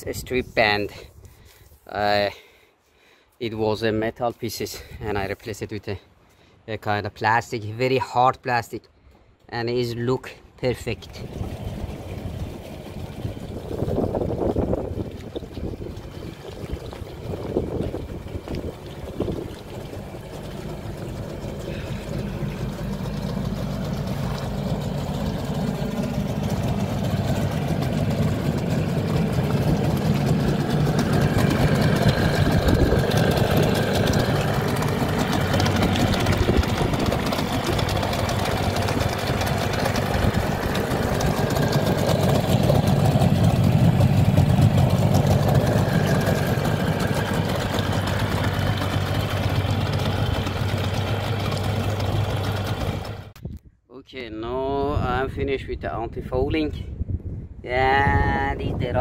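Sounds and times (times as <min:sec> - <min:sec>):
outboard motor running: 0:10.7 - 0:53.4
water churning and splashing: 0:10.8 - 0:53.4.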